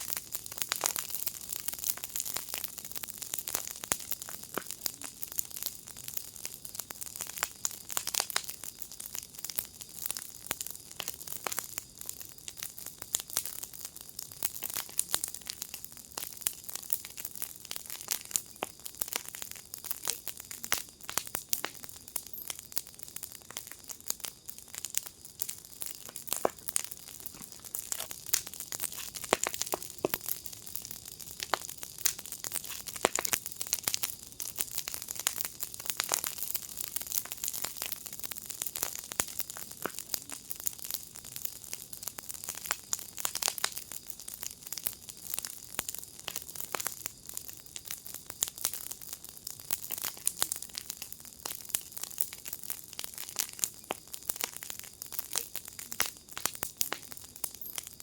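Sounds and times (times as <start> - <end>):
fire crackling: 0.0 - 58.0.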